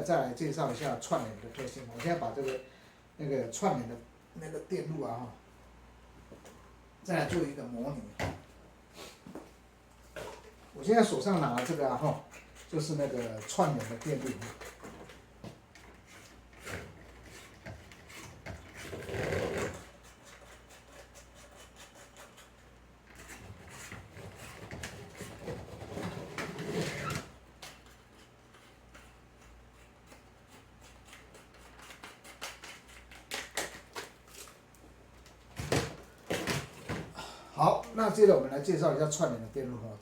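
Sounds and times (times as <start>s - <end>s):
rustling and scraping: 8.4s - 37.1s.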